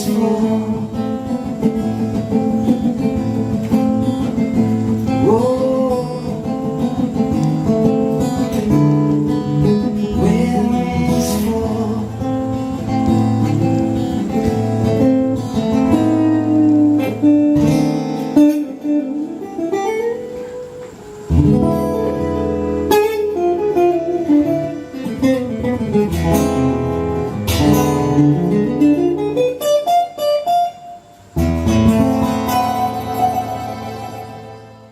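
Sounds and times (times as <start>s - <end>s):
acoustic guitar playing: 0.0s - 34.9s.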